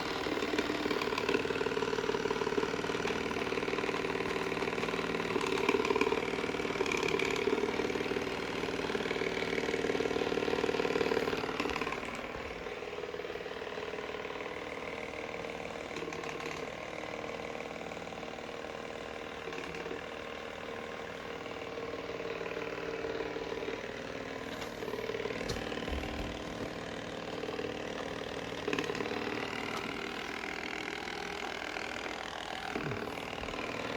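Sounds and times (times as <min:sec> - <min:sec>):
robot vacuum motor hum: 0:21.2 - 0:33.9.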